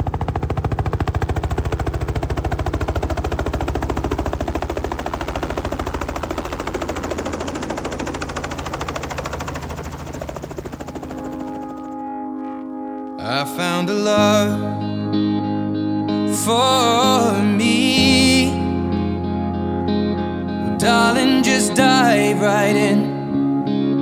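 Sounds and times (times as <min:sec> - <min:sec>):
helicopter rotor chopping: 0:00.0 - 0:13.8.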